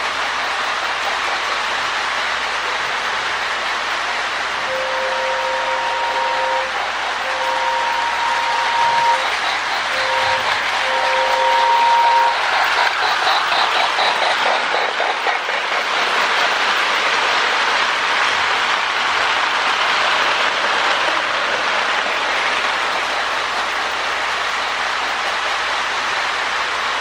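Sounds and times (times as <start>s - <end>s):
toy train motor and wheel noise: 0.0s - 27.0s
toy train steam chuffing: 0.0s - 27.0s.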